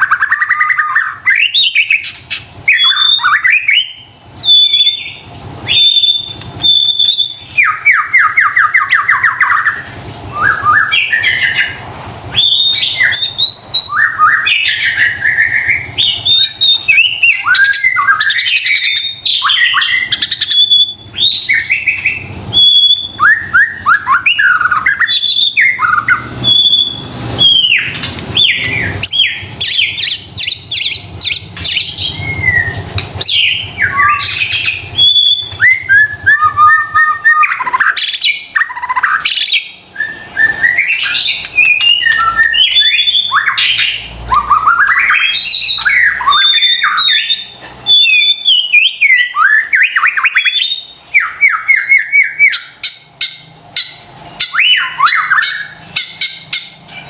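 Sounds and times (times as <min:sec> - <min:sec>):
bird singing varied phrases: 0:00.0 - 0:57.0.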